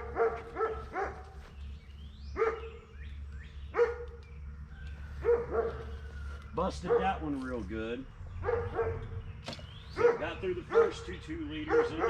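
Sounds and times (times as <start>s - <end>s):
dog barking: 0.0s - 1.4s, 2.4s - 2.9s, 3.7s - 4.2s, 5.2s - 6.0s, 6.7s - 7.4s, 8.4s - 9.2s, 9.9s - 12.0s.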